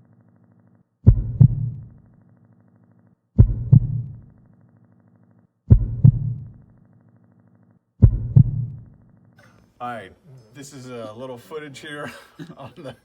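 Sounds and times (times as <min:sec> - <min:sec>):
heartbeat double thump: 0:01.0 - 0:02.1, 0:03.4 - 0:04.4, 0:05.7 - 0:06.8, 0:08.0 - 0:09.0.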